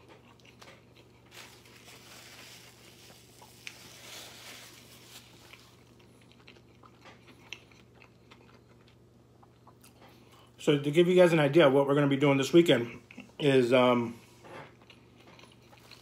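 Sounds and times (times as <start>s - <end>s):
chewing with mouth closed: 0.0s - 1.7s, 4.8s - 10.6s, 14.6s - 16.0s.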